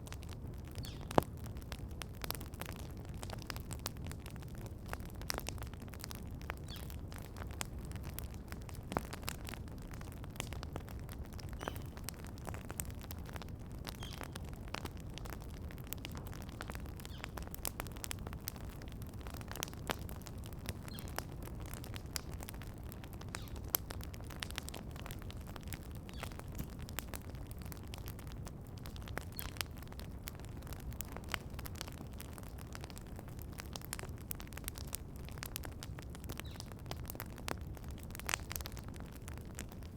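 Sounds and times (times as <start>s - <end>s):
campfire crackling: 0.0s - 39.9s
faint bird chirps: 0.8s - 1.1s, 6.6s - 7.0s, 11.5s - 12.0s, 14.0s - 14.3s, 17.0s - 17.4s, 20.9s - 21.2s, 23.3s - 23.6s.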